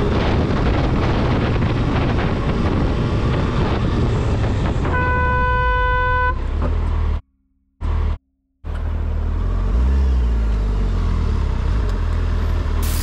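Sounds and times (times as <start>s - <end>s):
wind rush on microphone: 0.0s - 5.4s.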